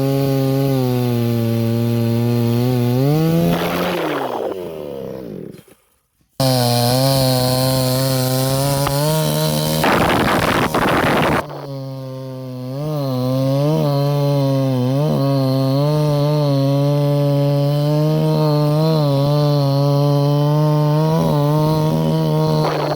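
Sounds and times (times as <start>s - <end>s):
chainsaw engine running: 0.0s - 22.9s
loud rasping chainsaw: 0.0s - 22.9s.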